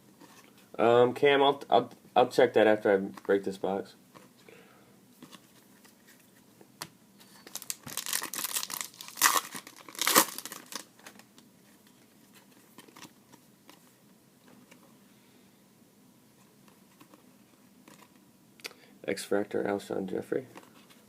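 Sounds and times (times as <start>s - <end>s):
wrapper tearing and crackling: 7.5s - 11.3s.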